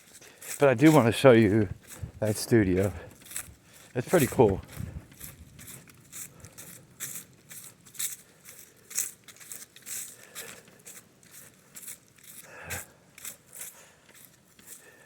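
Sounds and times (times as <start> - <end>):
footsteps walking: 0.0 - 15.0.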